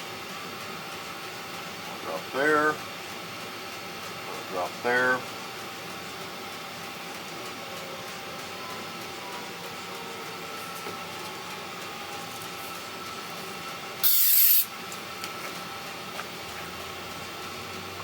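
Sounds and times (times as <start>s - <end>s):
steady background hum: 0.0s - 18.0s
aerosol spray hiss: 14.0s - 14.7s.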